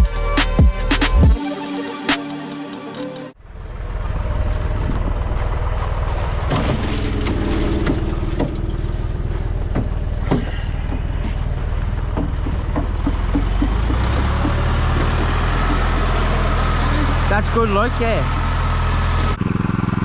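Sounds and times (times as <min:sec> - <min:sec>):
truck engine running: 0:03.4 - 0:20.0
knocks and clicks: 0:09.6 - 0:16.4.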